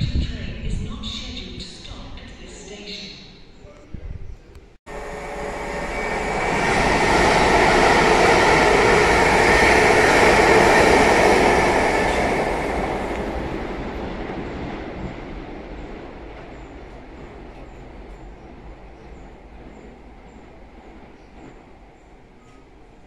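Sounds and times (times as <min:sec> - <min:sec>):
passenger train passing: 0:04.7 - 0:23.0.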